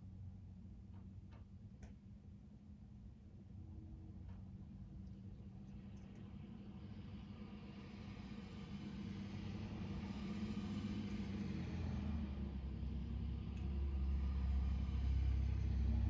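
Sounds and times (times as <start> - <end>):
deep low rumble: 10.8 - 16.0.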